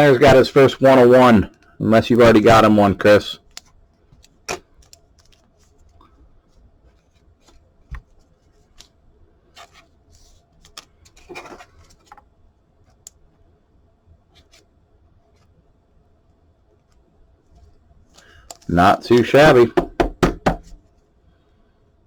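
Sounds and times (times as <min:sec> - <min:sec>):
cards clicking and rustling: 0:03.5 - 0:06.0, 0:07.0 - 0:12.3, 0:18.1 - 0:19.6.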